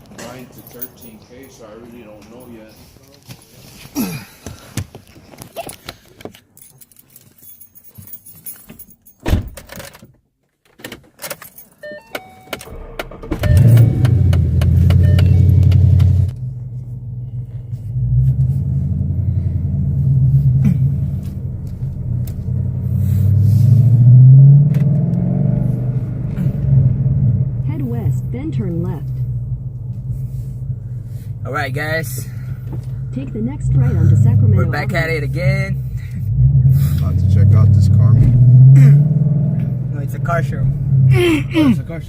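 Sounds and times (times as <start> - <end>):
keys jangling: 5.6 - 10.1, 11.0 - 11.8
car engine starting and revving: 12.5 - 42.0.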